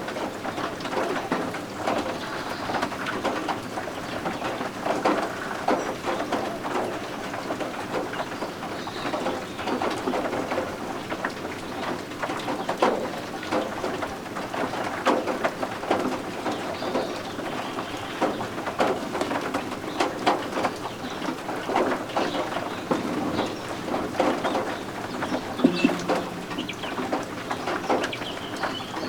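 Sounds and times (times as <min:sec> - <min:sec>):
rain patter: 0:00.0 - 0:29.0
guinea fowl chicks peeping: 0:25.6 - 0:26.9.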